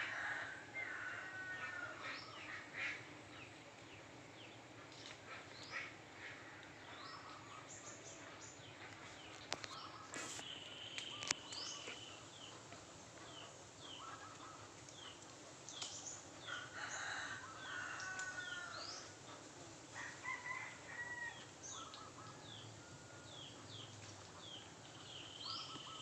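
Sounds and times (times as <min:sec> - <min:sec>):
outdoor ambience: 0:00.0 - 0:26.0
birds chirping and calling: 0:06.8 - 0:12.6, 0:13.2 - 0:19.1, 0:21.4 - 0:22.7, 0:23.4 - 0:26.0.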